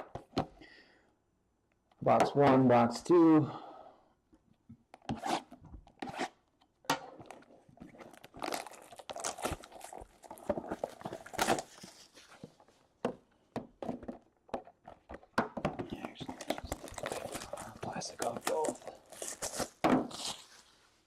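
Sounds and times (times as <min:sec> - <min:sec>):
plastic shrink-wrap tearing and crinkling: 0:07.9 - 0:12.3, 0:16.2 - 0:20.7.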